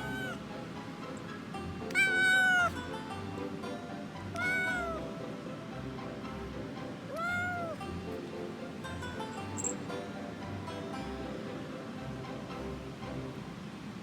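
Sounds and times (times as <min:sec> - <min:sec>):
kitten meowing: 0:00.0 - 0:00.4, 0:01.9 - 0:02.8, 0:04.4 - 0:05.0, 0:07.1 - 0:07.9
background music: 0:00.0 - 0:14.0.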